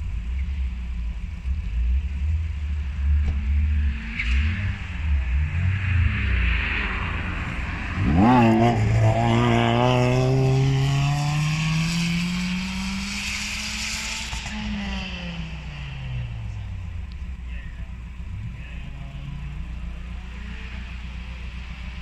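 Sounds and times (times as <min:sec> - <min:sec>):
car engine revving hard: 0:05.5 - 0:16.3.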